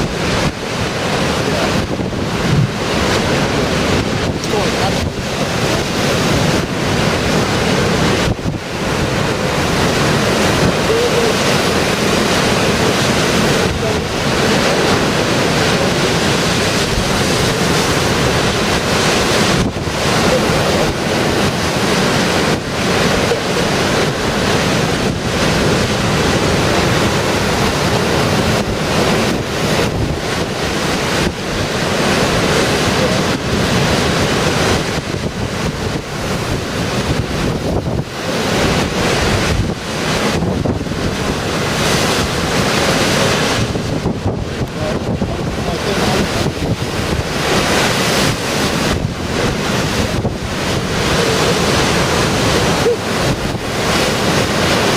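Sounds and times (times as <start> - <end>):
storm waves breaking on shore: 0.0 - 54.9
strong wind buffeting microphone: 0.0 - 54.9.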